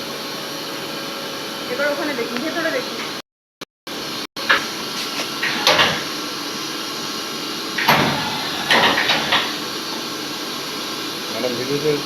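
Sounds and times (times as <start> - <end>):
tool changer mechanical clunks: 4.5 - 6.2, 7.7 - 10.2
steady machine hiss: 4.5 - 12.0.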